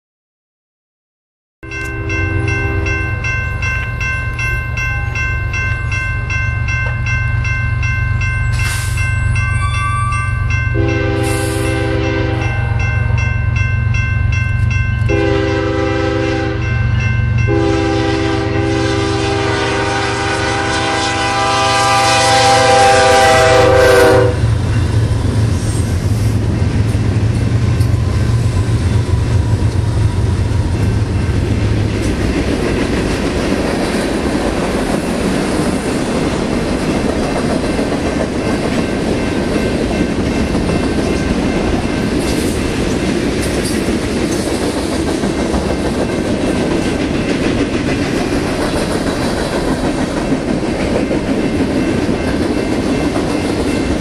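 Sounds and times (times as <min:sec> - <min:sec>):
high ringing bell: 0:01.6 - 0:15.4, 0:16.6 - 0:17.9
train air horn blasts: 0:10.8 - 0:12.8, 0:15.1 - 0:16.8, 0:17.5 - 0:24.6
wheels clacking on rail joints: 0:26.4 - 0:54.0.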